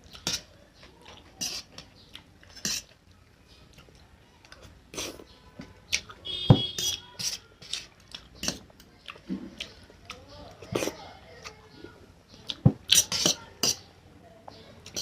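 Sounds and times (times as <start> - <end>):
close-miked chewing and mouth clicks: 0.0 - 3.0, 3.7 - 5.3, 7.6 - 11.6.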